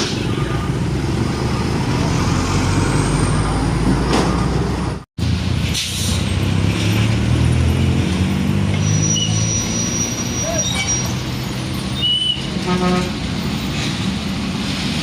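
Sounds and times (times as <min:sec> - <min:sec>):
diesel trucks passing: 0:00.0 - 0:15.0.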